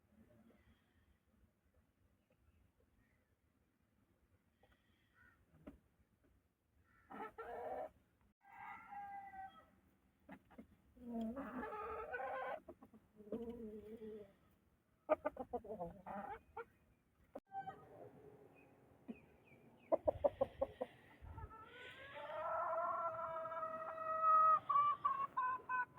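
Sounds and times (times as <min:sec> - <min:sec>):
chickens calling: 0:07.1 - 0:09.6, 0:10.3 - 0:14.4, 0:15.0 - 0:18.2, 0:19.1 - 0:25.9.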